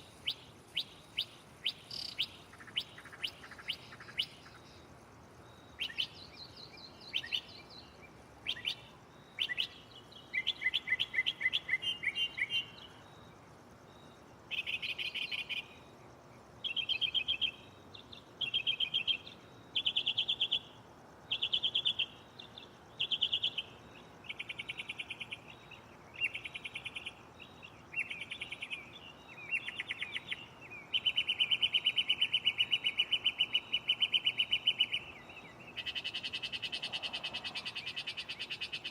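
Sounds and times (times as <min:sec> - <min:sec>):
mockingbird singing: 0:00.0 - 0:04.7, 0:05.5 - 0:13.2, 0:21.3 - 0:38.9.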